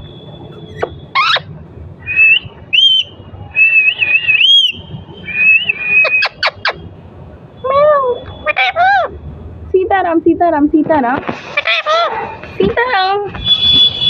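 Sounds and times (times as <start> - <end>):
parrot chirps: 0.6 - 1.5, 2.1 - 6.8, 8.3 - 9.1
parrot whistling: 0.6 - 6.8.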